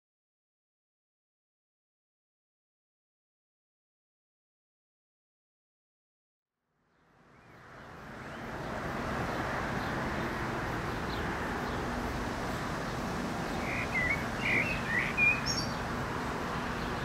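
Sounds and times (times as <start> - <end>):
bird chirping: 6.9 - 16.0.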